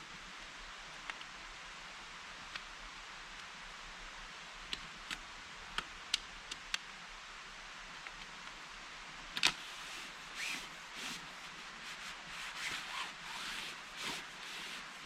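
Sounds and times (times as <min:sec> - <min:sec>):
outdoor background hiss: 0:00.0 - 0:15.0
small sharp snaps: 0:04.7 - 0:06.9.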